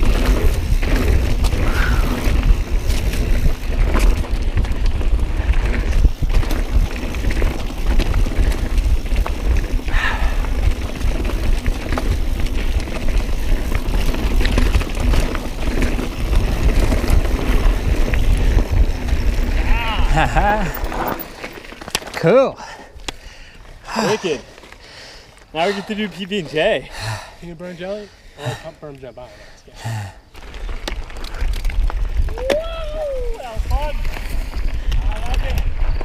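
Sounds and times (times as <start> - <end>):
wind rumble on microphone: 0.0 - 21.1, 30.7 - 36.0
bike rattling clicks: 0.0 - 22.3, 23.0 - 23.8, 30.3 - 32.8, 33.6 - 36.0
bike tyres on rocky trail: 0.0 - 36.0.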